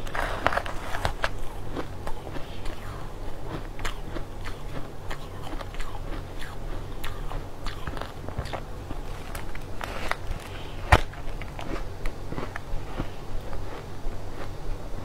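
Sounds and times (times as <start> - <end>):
crushed ice crunching: 0.0 - 1.9
steady low hum: 0.0 - 15.0.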